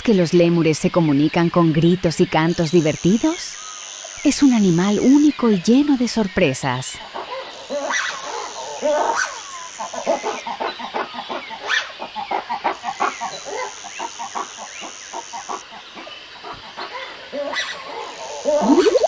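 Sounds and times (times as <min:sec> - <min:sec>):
lemurs chattering: 0:00.1 - 0:19.0
high-pitched background tone: 0:18.5 - 0:19.0.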